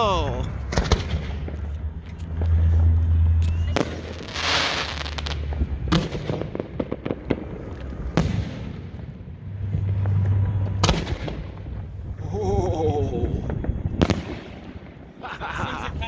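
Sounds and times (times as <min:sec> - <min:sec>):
fireworks bangs: 0:00.0 - 0:01.7, 0:02.8 - 0:11.9, 0:13.4 - 0:16.0
fireworks crackling: 0:02.3 - 0:12.2.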